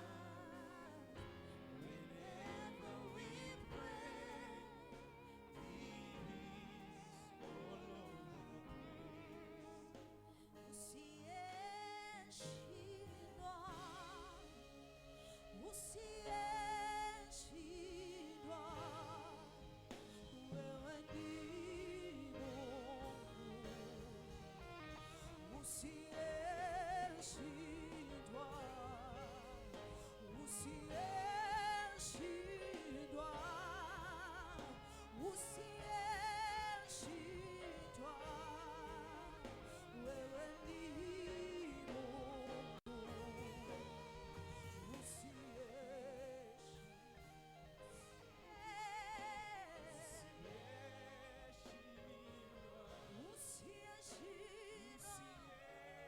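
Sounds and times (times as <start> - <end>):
person singing with vibrato: 0.0 - 56.0.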